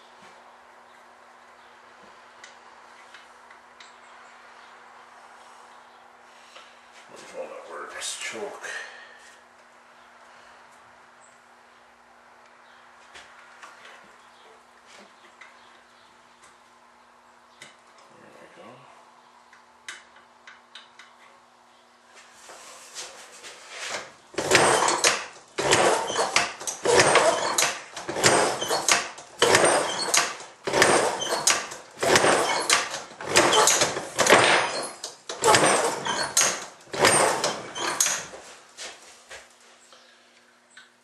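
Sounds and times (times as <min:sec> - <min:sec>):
small engine kickstarted: 0:23.9 - 0:38.4.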